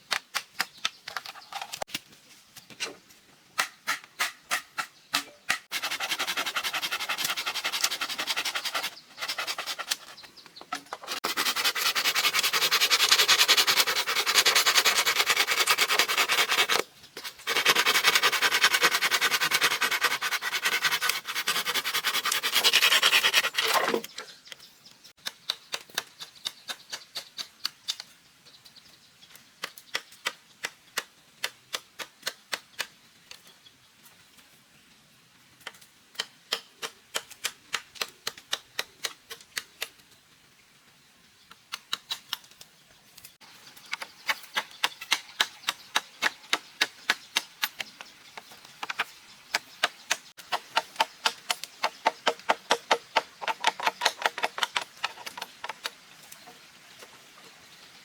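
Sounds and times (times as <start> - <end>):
rasping on bamboo: 5.7 - 10.2, 11.0 - 24.0, 44.0 - 55.9.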